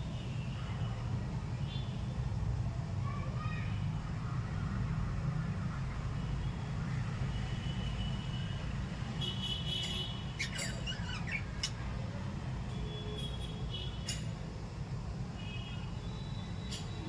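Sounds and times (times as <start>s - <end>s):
parrots chirping and squawking: 9.8s - 12.0s.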